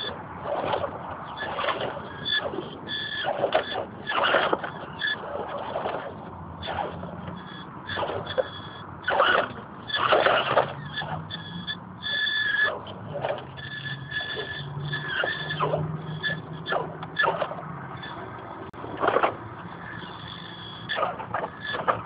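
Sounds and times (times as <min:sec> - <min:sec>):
electric motor whine: 0:00.0 - 0:22.0.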